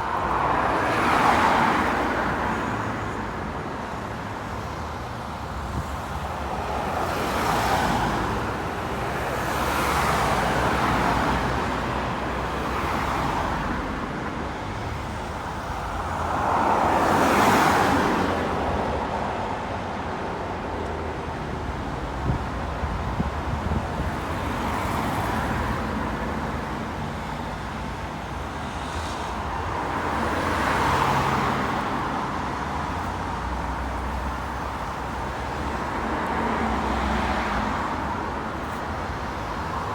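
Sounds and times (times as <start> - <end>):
vehicles passing by: 0.0 - 39.9.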